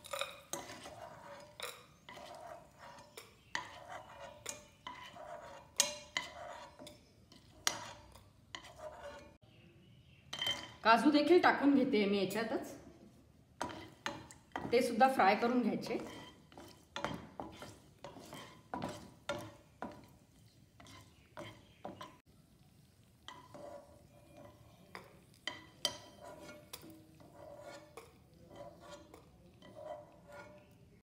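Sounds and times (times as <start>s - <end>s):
spoon clinking on steel bowl: 0.0s - 9.3s, 10.3s - 10.8s, 23.3s - 30.6s
spatula scraping a frying pan: 0.0s - 9.4s, 13.6s - 22.2s, 23.0s - 31.0s
steel spoon scraping a pan: 0.0s - 9.4s, 13.6s - 22.2s, 23.1s - 31.0s.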